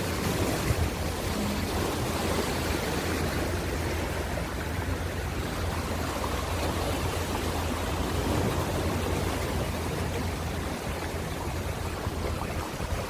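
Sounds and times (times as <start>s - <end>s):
ocean waves washing: 0.0s - 13.0s.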